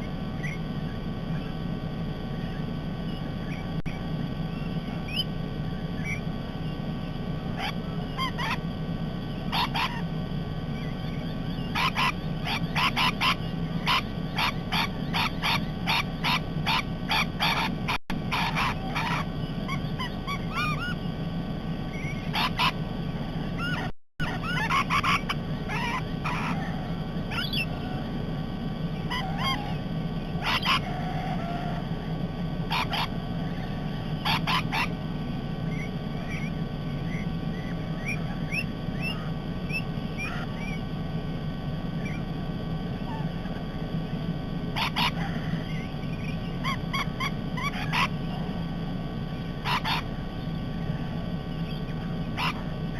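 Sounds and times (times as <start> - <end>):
steady low hum: 0.0 - 52.9
parrots screeching and chattering: 7.6 - 8.7, 9.4 - 10.1, 10.8 - 21.1, 21.9 - 22.8, 23.4 - 28.1, 29.0 - 31.9, 32.6 - 35.0, 35.6 - 40.8, 43.0 - 43.4, 44.7 - 48.5, 49.4 - 50.2, 51.6 - 52.9.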